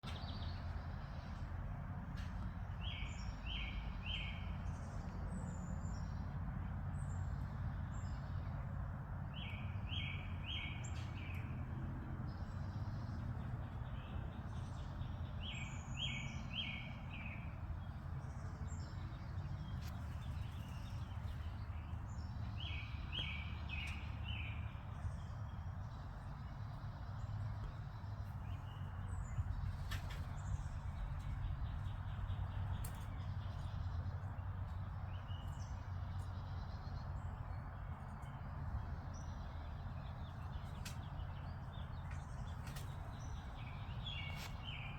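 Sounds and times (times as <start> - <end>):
birds chirping: 9.3 - 11.6, 12.3 - 44.9.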